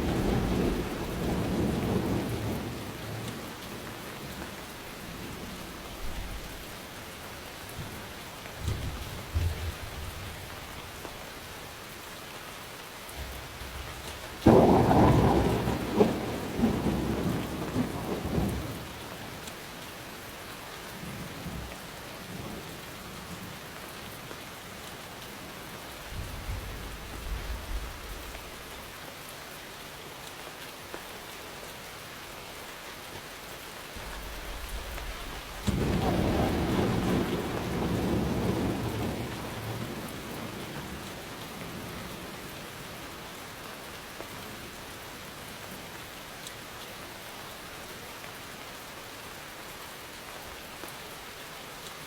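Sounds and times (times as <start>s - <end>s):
thunder: 0.0s - 3.3s, 8.6s - 10.6s, 13.2s - 19.0s, 26.1s - 28.4s, 34.0s - 42.4s
steady rain: 0.0s - 52.0s.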